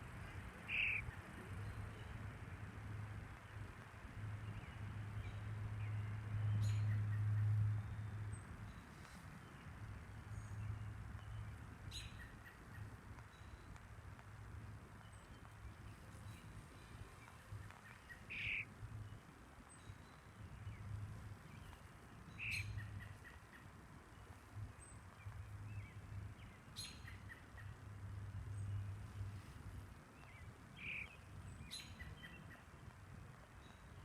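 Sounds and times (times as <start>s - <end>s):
bird chirps: 0.6s - 1.1s, 17.2s - 18.7s, 22.4s - 23.4s, 30.8s - 32.6s.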